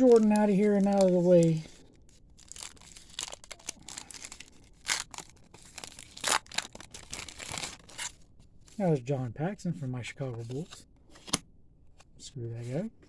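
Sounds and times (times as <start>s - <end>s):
wrapper ripping: 0.0s - 8.2s
paper wrapper crinkling: 0.0s - 8.3s.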